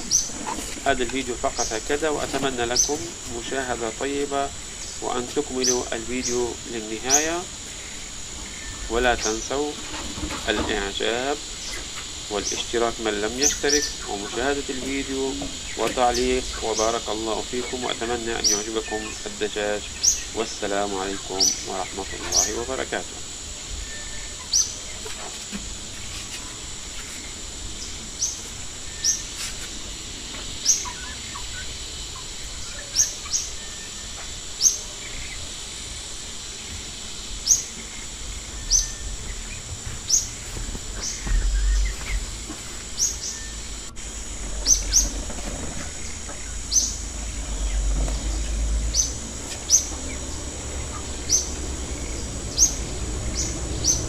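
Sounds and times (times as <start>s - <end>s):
birds chirping: 0.0s - 54.0s
steady high-pitched whine: 0.0s - 54.0s
low rumble: 40.6s - 42.5s.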